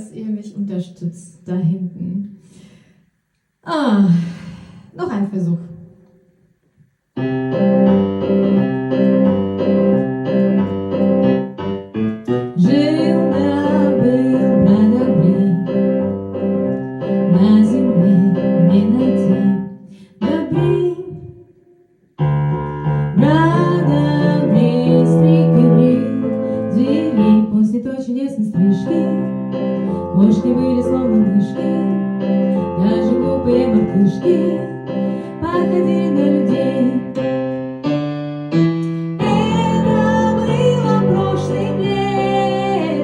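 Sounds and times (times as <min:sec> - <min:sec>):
piano keyboard chords: 0:07.2 - 0:21.3, 0:22.2 - 0:43.0
woman singing: 0:12.6 - 0:15.8, 0:17.3 - 0:21.4, 0:23.2 - 0:29.3, 0:30.0 - 0:32.0, 0:32.6 - 0:37.2, 0:39.2 - 0:43.0.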